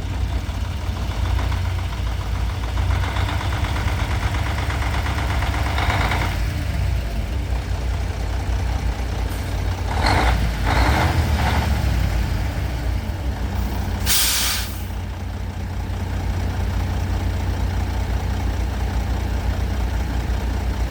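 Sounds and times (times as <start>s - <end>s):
diesel truck engine idling: 0.0s - 20.9s
air brake hiss: 13.6s - 15.0s.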